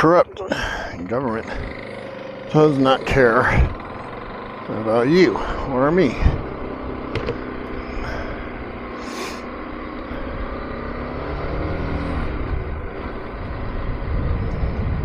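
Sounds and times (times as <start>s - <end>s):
motorcycle engine accelerating: 0.0s - 15.0s
wind rumble: 11.8s - 15.0s.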